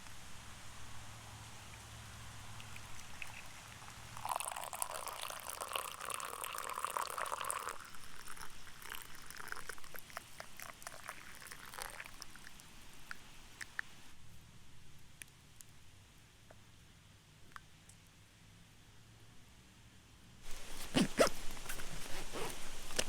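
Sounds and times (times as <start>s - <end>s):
water drips: 1.7s - 13.8s
water pouring from kettle into cup: 2.6s - 12.6s.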